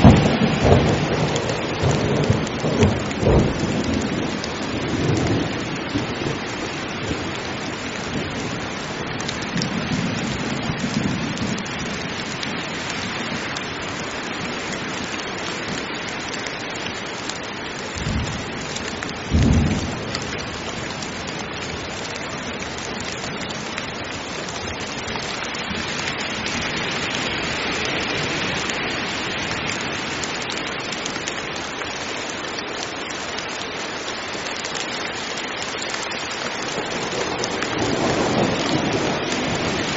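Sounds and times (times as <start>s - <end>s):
loud thunderclaps: 0.0s - 6.4s, 19.3s - 20.5s, 36.8s - 39.9s
thunder rumbling: 0.0s - 6.5s, 19.2s - 21.4s, 36.7s - 39.9s
heavy rain pouring: 0.0s - 39.9s.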